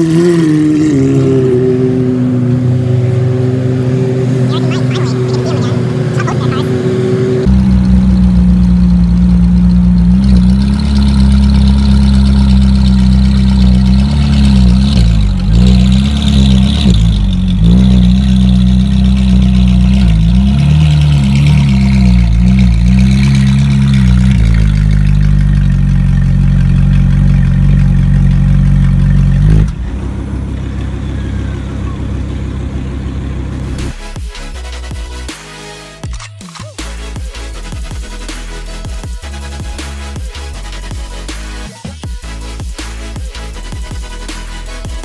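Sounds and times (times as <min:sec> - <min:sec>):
engine revving: 0:00.0 - 0:36.0
sports car engine idling: 0:02.3 - 0:35.3.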